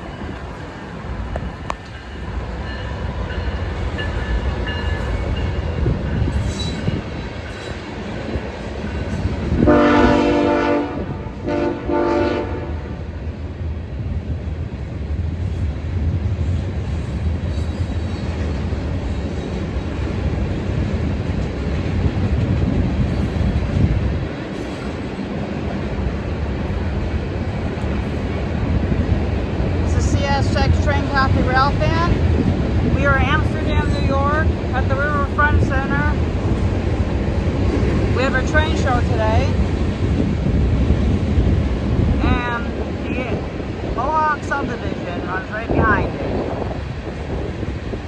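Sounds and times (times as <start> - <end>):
train rumbling past: 0.0 - 48.0
locomotive horn blasts: 9.6 - 13.0.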